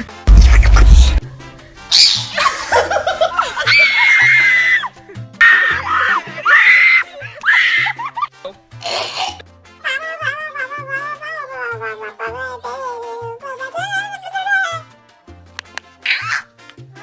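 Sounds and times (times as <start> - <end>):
person making high-pitched squeals: 9.9 - 12.8, 16.0 - 16.5.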